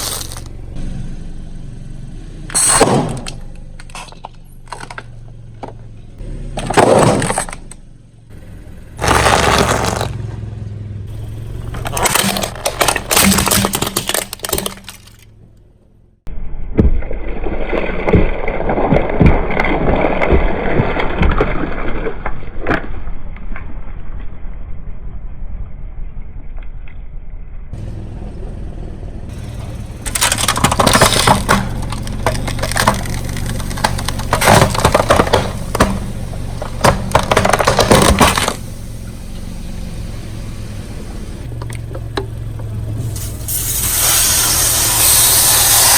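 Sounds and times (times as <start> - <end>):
tyre crushing brittle objects: 0.0 - 0.5, 6.6 - 7.8, 9.0 - 10.2, 11.5 - 15.4, 29.4 - 38.7
car engine hum: 0.0 - 16.3, 27.6 - 45.9.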